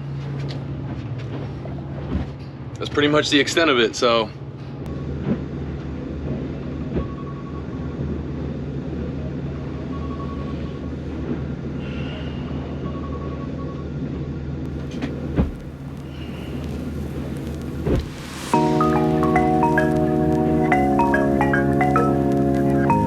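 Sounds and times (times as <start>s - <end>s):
boat engine drone: 14.7s - 23.0s.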